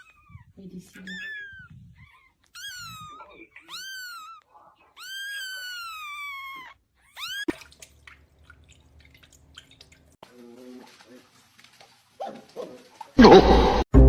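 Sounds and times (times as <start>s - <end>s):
cat meowing: 0.0s - 7.5s.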